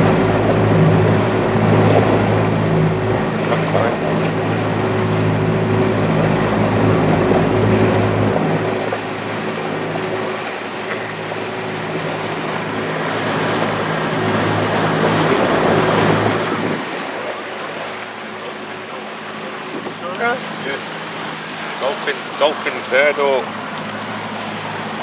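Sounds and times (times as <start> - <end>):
motorboat engine humming: 0.0 - 25.0
water rushing along hull: 0.0 - 25.0.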